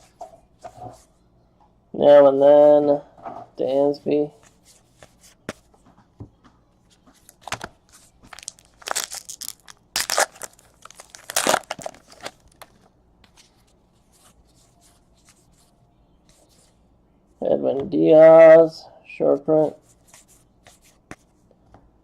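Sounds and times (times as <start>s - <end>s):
wrappers tearing and crinkling: 8.3s - 12.8s.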